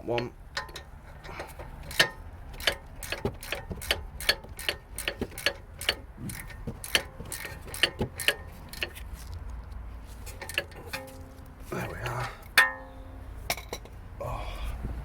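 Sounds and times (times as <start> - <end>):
socket ratchet clicking: 1.5 - 9.0.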